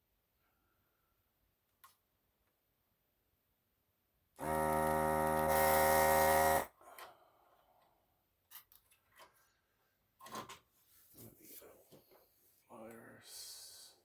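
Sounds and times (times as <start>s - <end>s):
desoldering pump buzzing: 4.4s - 6.7s.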